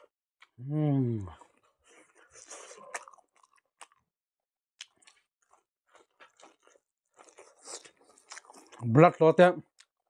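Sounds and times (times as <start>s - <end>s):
chewing food: 1.3s - 4.0s, 4.8s - 8.9s.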